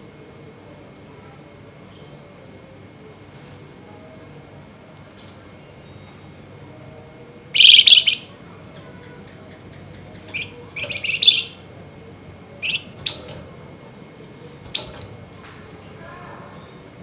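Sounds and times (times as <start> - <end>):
songbird chattering: 7.5 - 11.7, 12.5 - 13.5, 14.7 - 15.2
faint background hiss: 10.3 - 13.6.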